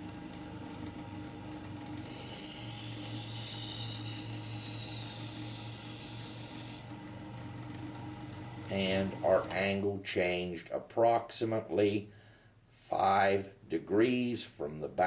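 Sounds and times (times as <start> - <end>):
machine motor hum: 0.0 - 9.9
blade grinding on abrasive wheel: 2.0 - 6.9.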